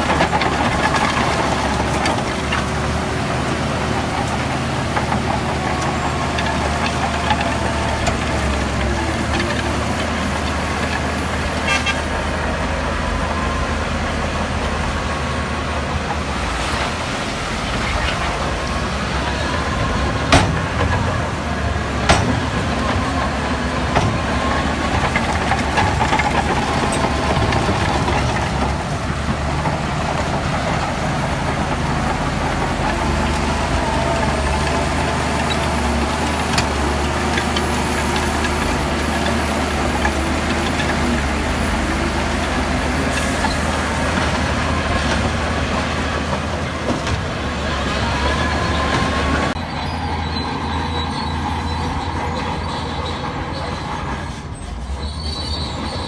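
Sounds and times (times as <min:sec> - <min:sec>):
heavy diesel machinery engine drone: 0:00.0 - 0:56.0
faint metallic squealing: 0:49.6 - 0:56.0.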